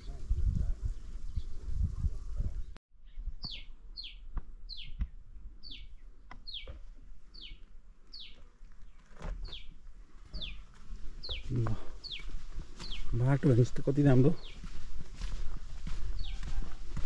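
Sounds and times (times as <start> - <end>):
footsteps on stone path: 5.7 - 17.0.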